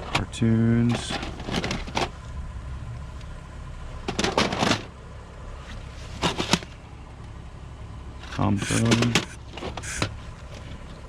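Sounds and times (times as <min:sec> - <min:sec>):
low steady hum: 0:00.0 - 0:11.0
plastic cassettes clattering: 0:00.9 - 0:02.1, 0:04.1 - 0:04.9, 0:06.2 - 0:06.7.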